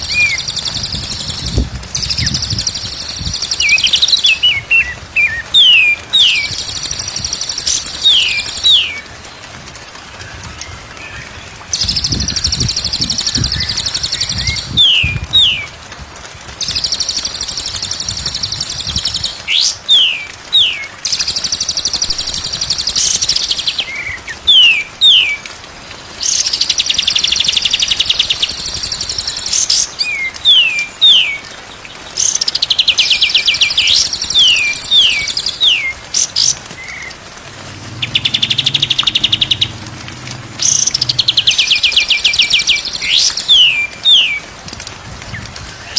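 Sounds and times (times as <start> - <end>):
songbird trilling and whistling: 0.0 - 9.0, 11.8 - 15.7, 16.6 - 25.4, 32.2 - 37.1, 38.0 - 39.8, 40.6 - 44.4.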